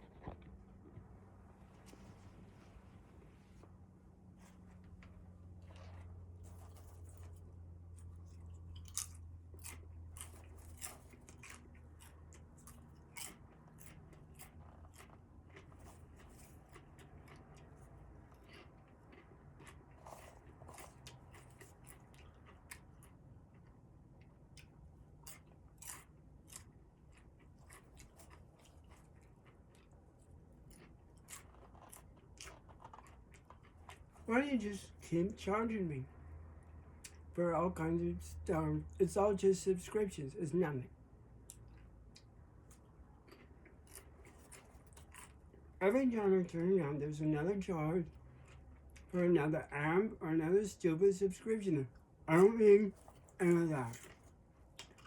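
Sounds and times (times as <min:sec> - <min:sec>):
soft clicks and crunches: 0:00.0 - 0:03.8, 0:04.4 - 0:34.3, 0:41.4 - 0:45.6, 0:52.9 - 0:55.0
low steady hum: 0:00.0 - 0:55.0.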